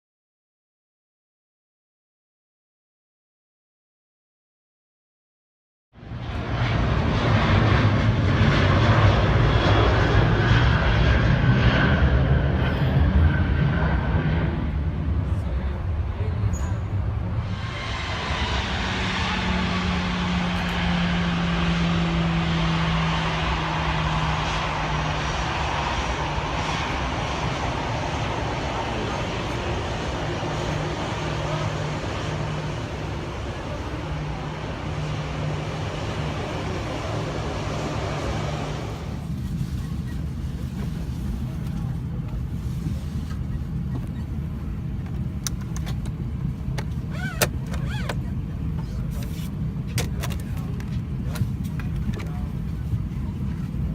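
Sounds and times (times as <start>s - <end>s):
airplane cabin rumble: 6.0s - 53.9s
low engine hum: 6.0s - 53.9s
aircraft cabin rushing hiss: 38.8s - 46.2s, 46.8s - 53.4s.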